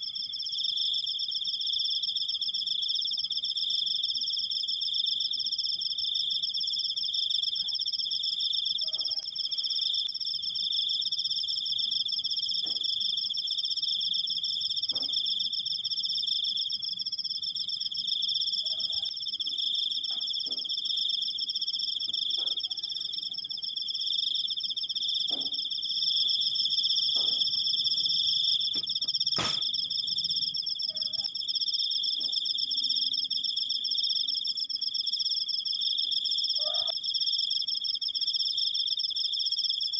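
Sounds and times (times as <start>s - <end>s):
crickets chirping: 0.0s - 39.9s
sharp click: 28.8s - 29.7s.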